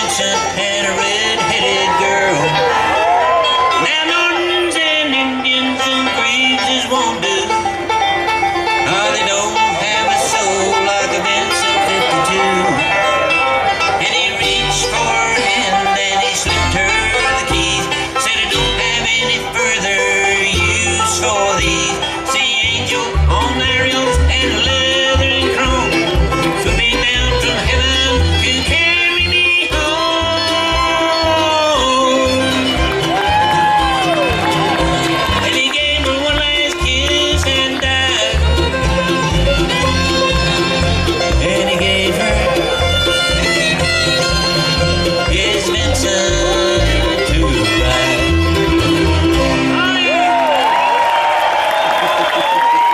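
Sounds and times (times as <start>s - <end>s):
banjo: 0.0s - 50.9s
fiddle: 0.0s - 52.9s
guitar: 0.0s - 52.9s
bass beat: 22.6s - 50.3s.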